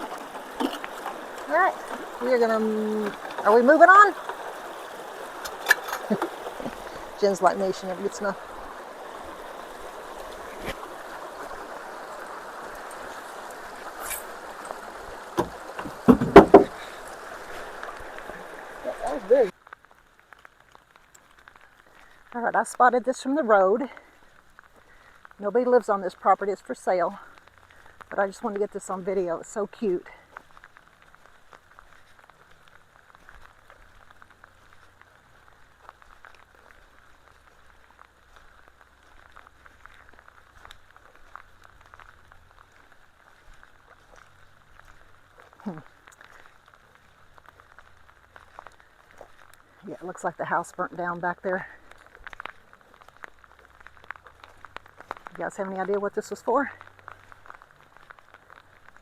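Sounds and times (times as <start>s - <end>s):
light rain pattering: 0.0s - 59.0s
water rushing through culverts: 0.0s - 59.0s
loud thumps or splashes: 15.4s - 17.0s.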